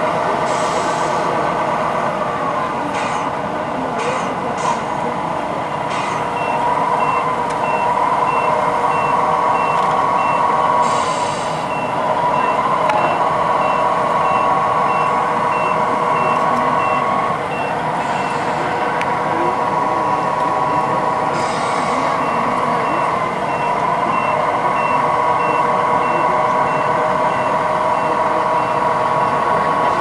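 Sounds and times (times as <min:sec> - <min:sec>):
reversing beeper: 0:05.7 - 0:18.7, 0:19.9 - 0:29.0.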